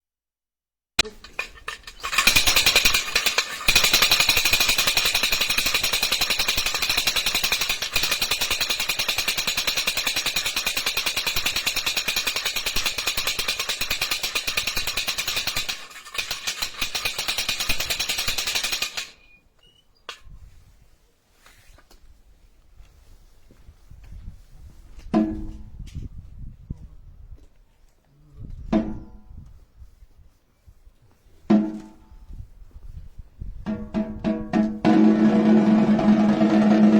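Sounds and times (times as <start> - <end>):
wooden rattle clattering: 1.0 - 19.2.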